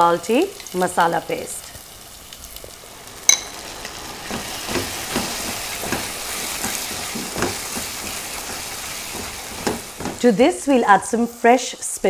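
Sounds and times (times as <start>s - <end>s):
curry paste sizzling in a pan: 0.0s - 12.0s
spoon clinking on pan: 3.3s - 3.6s
wooden spoon stirring and scraping: 3.8s - 10.4s.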